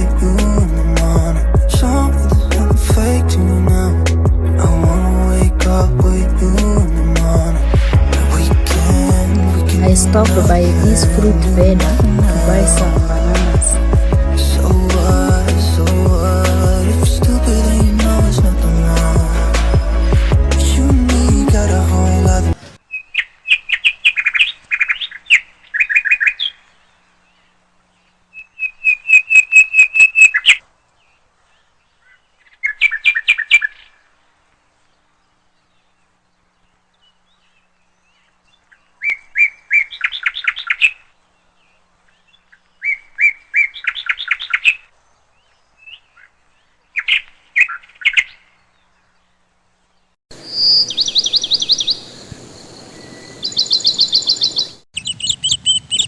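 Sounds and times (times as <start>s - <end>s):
songbird chirping: 0.0s - 56.0s
steady outdoor hiss: 0.0s - 56.0s.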